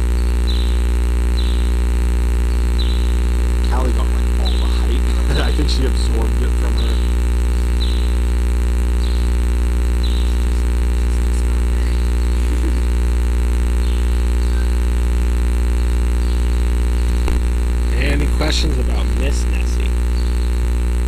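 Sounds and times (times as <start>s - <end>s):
low electrical hum: 0.0s - 21.0s
faint high chirps: 9.0s - 13.0s, 13.8s - 15.0s.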